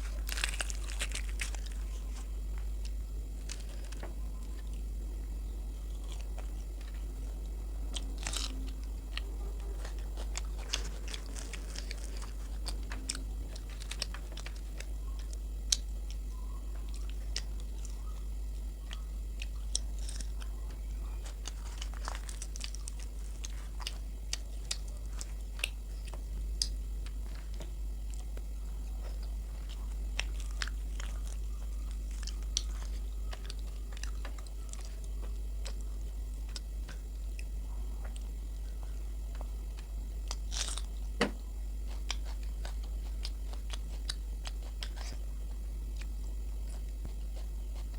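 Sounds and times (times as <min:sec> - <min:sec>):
person chewing food: 0:00.0 - 0:04.9, 0:05.7 - 0:47.9
small crunches: 0:00.0 - 0:04.9, 0:05.7 - 0:47.9
steady low hum: 0:00.0 - 0:47.9.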